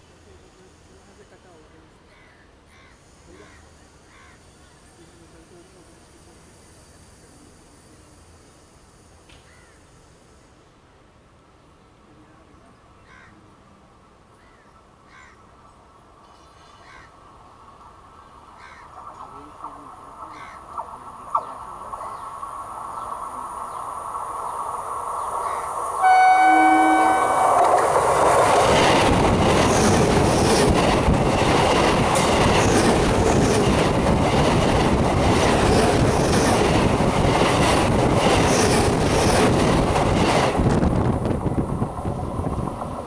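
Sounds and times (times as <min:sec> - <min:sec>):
train undercarriage rumble: 0:18.9 - 0:43.0
train horn: 0:26.0 - 0:28.0
train wheels clattering: 0:27.0 - 0:43.0.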